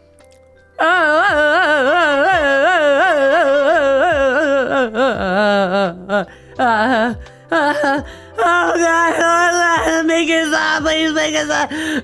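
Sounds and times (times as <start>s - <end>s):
high wailing voice warbling: 0.8s - 11.7s.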